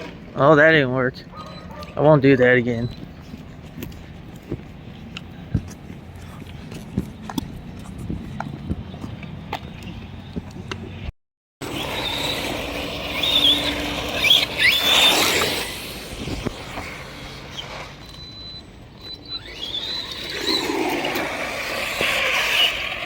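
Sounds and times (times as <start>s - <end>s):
electric motor whine: 11.6s - 18.4s, 19.0s - 23.0s.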